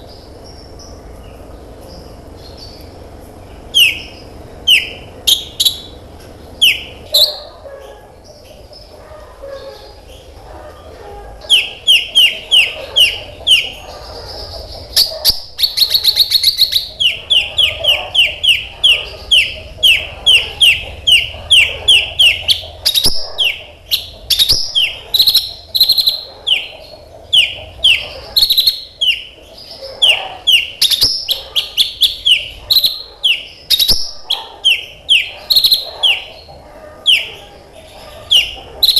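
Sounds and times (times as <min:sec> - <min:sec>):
fast buzzy bird trill: 0:11.5 - 0:37.3.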